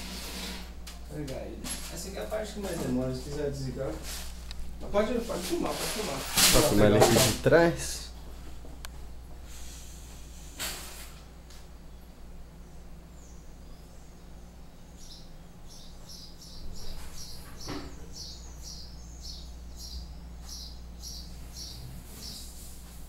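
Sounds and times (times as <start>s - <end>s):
small bird chirping: 11.8s - 22.6s.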